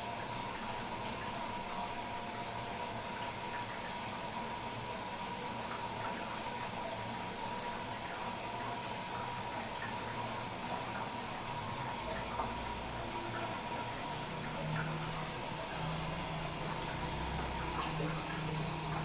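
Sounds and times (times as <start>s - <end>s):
water rushing into drum: 9.2s - 19.0s.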